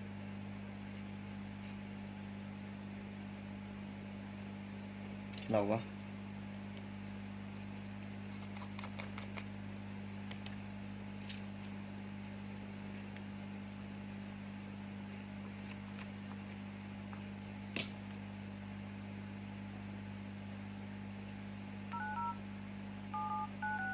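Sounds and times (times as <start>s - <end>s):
low electrical hum: 0.0s - 23.9s
touch-tone phone beeps: 21.9s - 22.4s, 23.1s - 23.9s.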